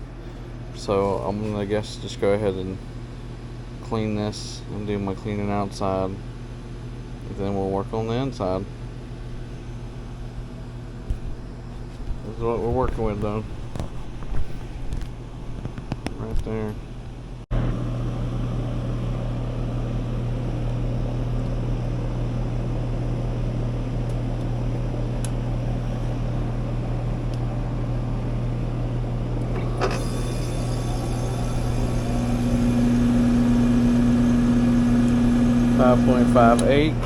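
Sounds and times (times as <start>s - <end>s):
air conditioner hum and fan: 0.0s - 37.0s
higher hum: 29.2s - 37.0s.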